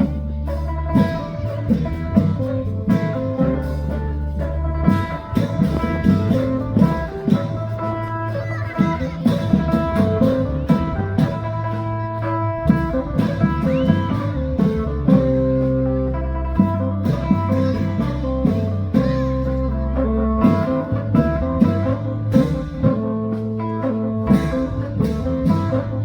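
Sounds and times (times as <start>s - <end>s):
held bass notes: 0.0s - 26.0s.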